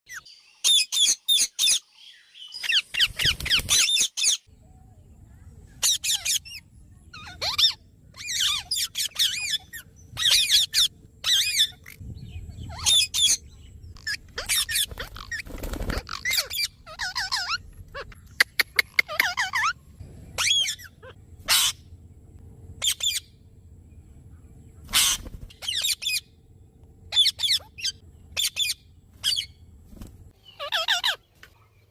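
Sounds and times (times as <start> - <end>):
parrot squawking: 7.2 - 12.0, 14.0 - 19.8, 20.4 - 21.8, 24.9 - 26.2, 27.1 - 29.6, 30.5 - 31.3.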